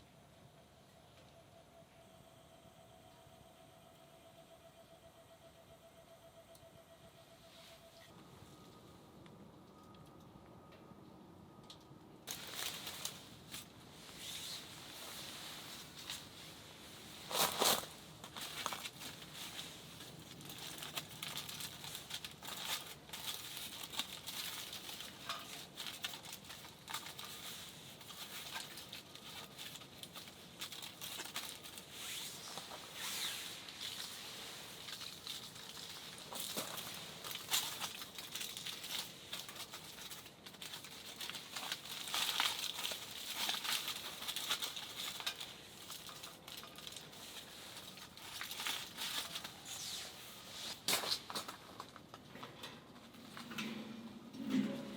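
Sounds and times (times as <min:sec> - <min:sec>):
plastic packaging crinkling: 0:12.3 - 0:52.2.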